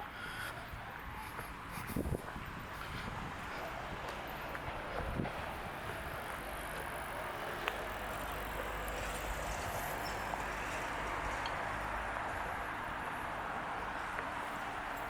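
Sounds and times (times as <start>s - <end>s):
street ambience rumble: 0.0s - 15.0s.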